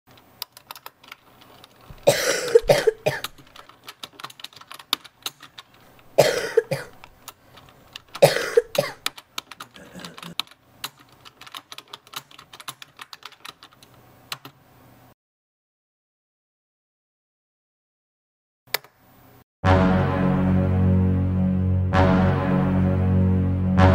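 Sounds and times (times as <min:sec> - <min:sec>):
person coughing: 0:02.0 - 0:03.3, 0:06.2 - 0:07.0, 0:08.2 - 0:09.0, 0:09.7 - 0:10.4
keyboard key clicks: 0:03.2 - 0:05.8.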